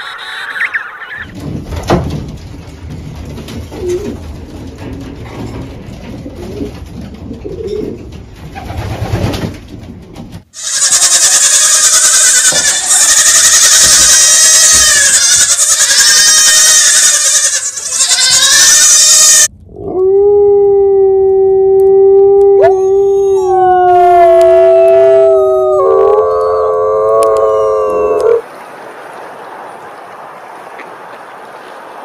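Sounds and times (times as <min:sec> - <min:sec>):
goat kids bleating: 0:10.6 - 0:19.5
wolves howling: 0:19.8 - 0:28.4.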